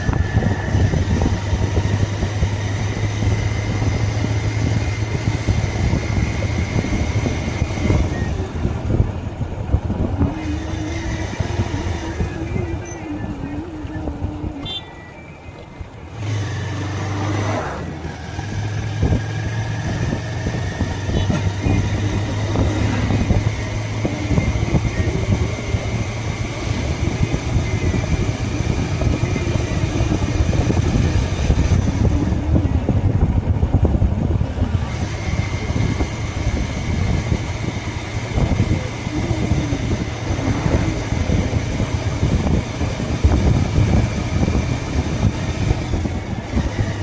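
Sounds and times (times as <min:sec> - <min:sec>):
motorcycle engine running: 0:00.0 - 0:47.0
road and wind noise: 0:00.0 - 0:47.0.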